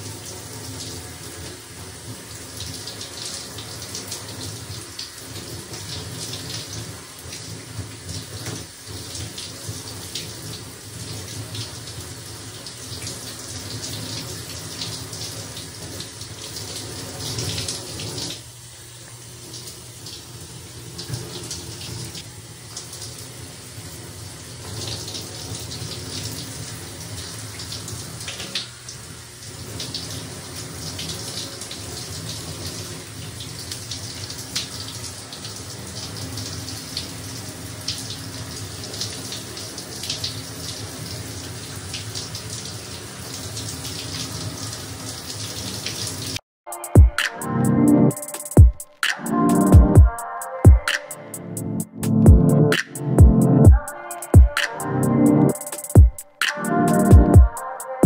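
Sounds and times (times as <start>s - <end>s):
stream of running water splashing: 19.2s - 46.4s.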